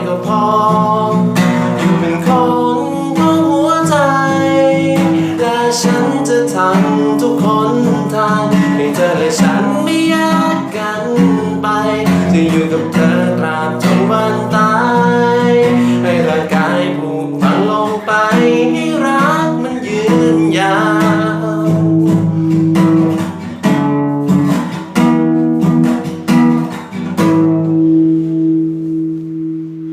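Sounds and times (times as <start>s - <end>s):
person singing: 0.0s - 23.4s
strummed acoustic guitar: 0.0s - 29.9s.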